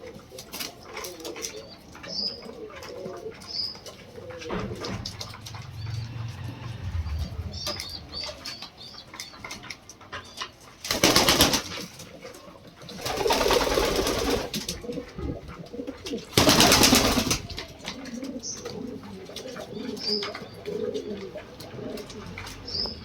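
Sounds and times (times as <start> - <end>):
pigeon wings flapping: 10.8 - 12.1, 12.9 - 15.0, 16.1 - 18.2
pigeon cooing: 13.0 - 23.0.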